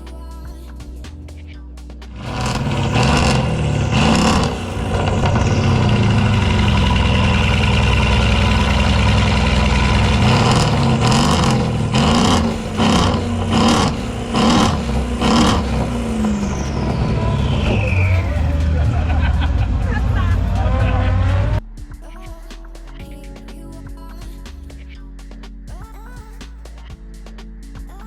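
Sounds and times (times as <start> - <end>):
car engine revving: 2.1 - 21.6.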